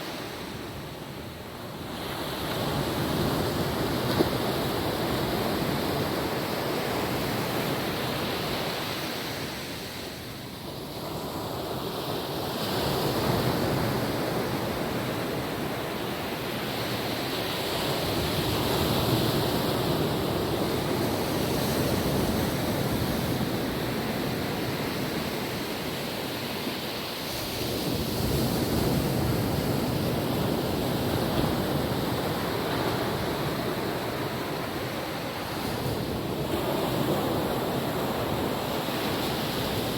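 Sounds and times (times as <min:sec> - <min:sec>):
small waves breaking on beach: 0:00.0 - 0:39.9
wind on microphone: 0:00.0 - 0:39.9.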